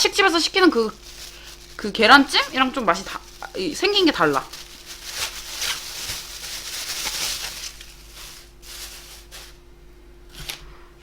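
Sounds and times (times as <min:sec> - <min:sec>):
plastic packaging rustling: 0:00.0 - 0:09.7
faint electrical hum: 0:00.0 - 0:11.0.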